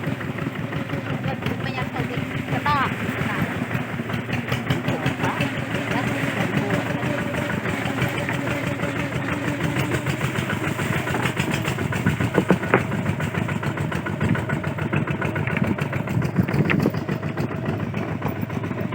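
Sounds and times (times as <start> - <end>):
diesel engine running: 0.0 - 18.9
sharp clattering knocks: 9.6 - 14.5.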